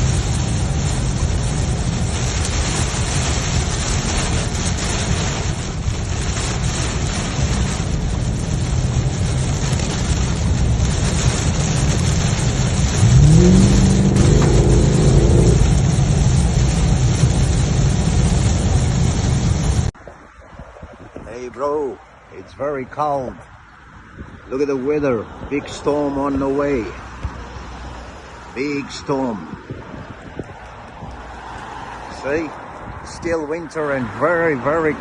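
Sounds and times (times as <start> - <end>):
wind rush: 0.0 - 22.5, 23.3 - 26.6, 27.6 - 35.0
road noise: 0.0 - 35.0
motorcycle engine accelerating: 12.8 - 17.2.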